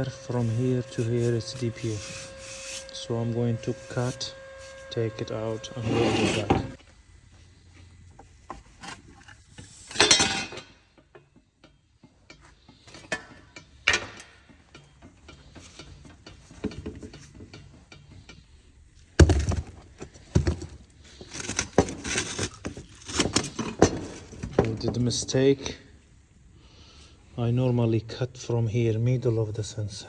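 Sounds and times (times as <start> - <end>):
metal tools clinking on exhaust: 9.8 - 18.6.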